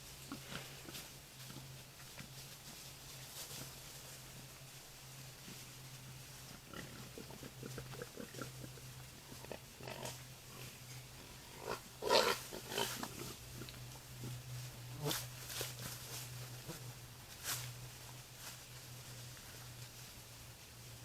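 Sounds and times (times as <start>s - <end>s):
wild boar grunting: 6.4s - 17.0s.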